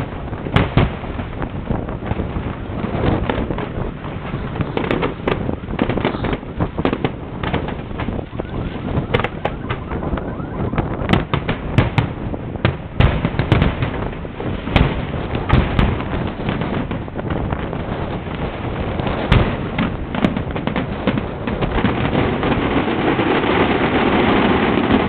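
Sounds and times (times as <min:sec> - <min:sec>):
fireworks bangs and crackles: 0:00.0 - 0:25.0
loud fireworks booms: 0:00.0 - 0:25.0.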